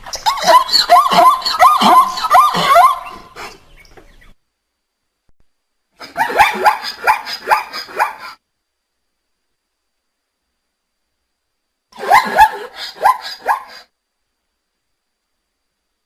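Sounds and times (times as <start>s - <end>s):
animal yelping bark-like calls: 0.0s - 3.7s, 6.0s - 8.4s, 12.0s - 13.9s.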